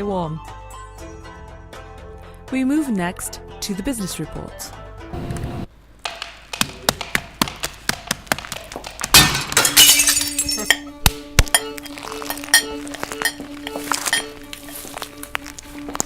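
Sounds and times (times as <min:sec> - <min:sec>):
sharp clicks and knocks: 0:06.0 - 0:09.5
loud crash with clinking: 0:09.2 - 0:10.8.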